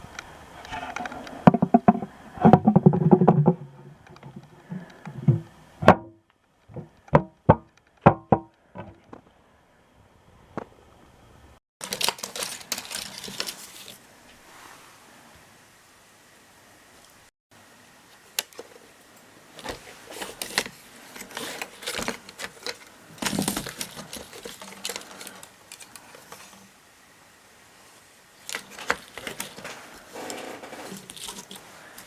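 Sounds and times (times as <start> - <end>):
hard objects clicking and knocking: 0.7 - 6.1.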